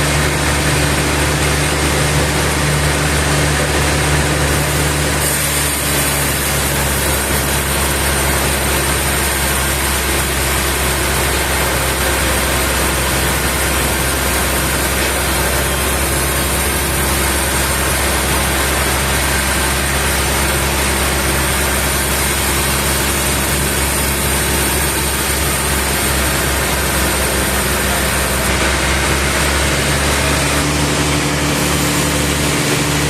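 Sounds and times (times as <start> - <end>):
sawmill machinery humming: 0.0 - 33.0.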